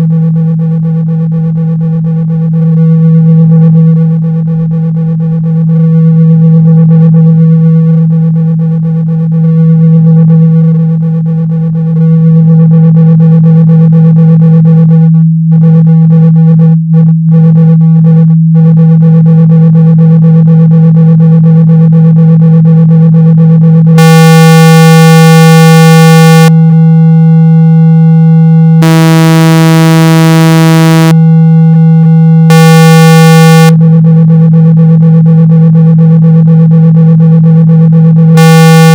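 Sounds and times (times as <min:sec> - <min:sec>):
low electronic tone: 0:11.7 - 0:38.9.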